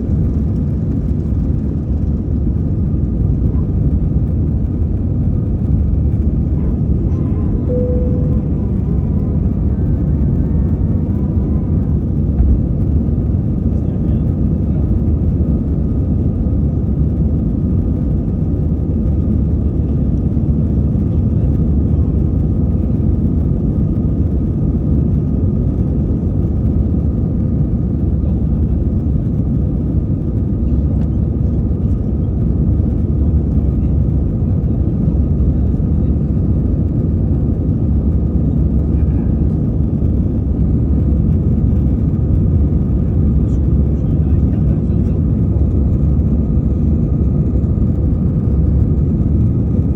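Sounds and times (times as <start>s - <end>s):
faint steady hum: 0.0s - 15.8s
jet engine and airflow roar: 0.0s - 49.9s.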